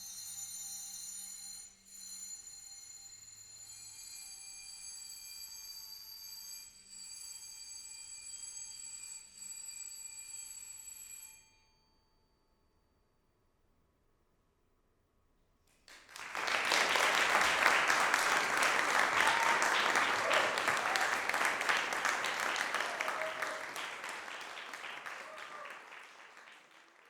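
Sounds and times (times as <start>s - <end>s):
audience applause: 15.9s - 27.0s
voices calling out: 16.2s - 26.6s.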